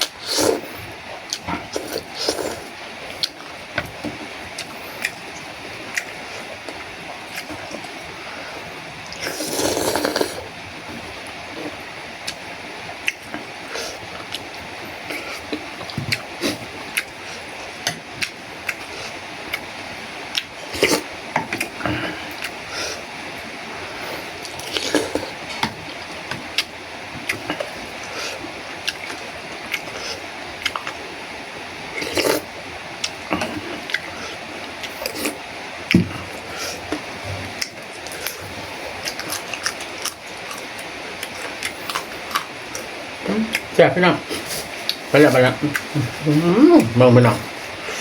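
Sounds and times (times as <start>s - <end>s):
background hiss: 0.0s - 48.0s
person chewing food: 1.3s - 3.5s, 9.1s - 10.5s, 24.4s - 31.0s, 32.0s - 32.4s, 34.8s - 42.9s.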